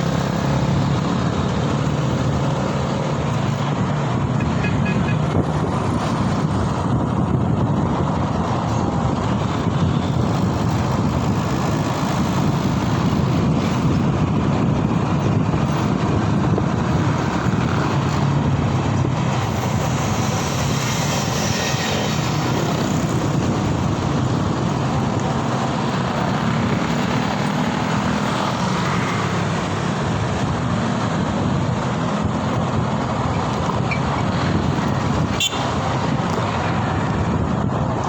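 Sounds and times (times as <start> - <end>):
road and wind noise: 0.0 - 38.0.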